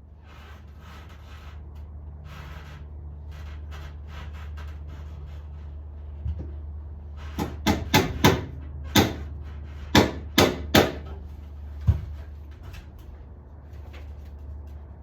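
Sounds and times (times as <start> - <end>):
sharp knocks: 7.4 - 9.3, 9.9 - 11.1.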